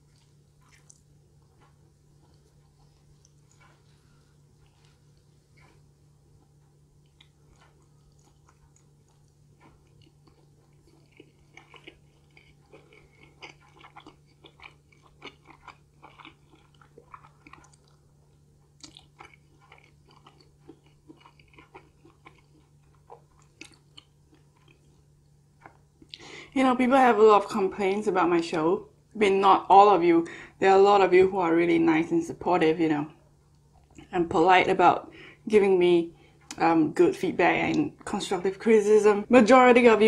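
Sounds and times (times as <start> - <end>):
person chewing pizza: 0.0 - 26.3.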